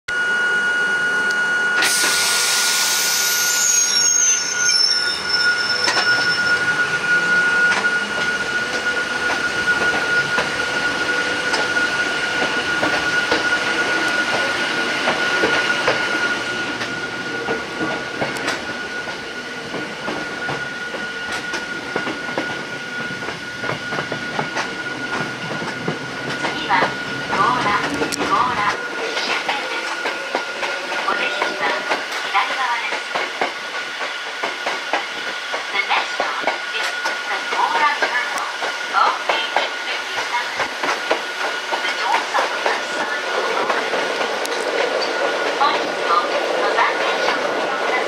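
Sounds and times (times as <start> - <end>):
loud hiss: 1.8 - 3.6.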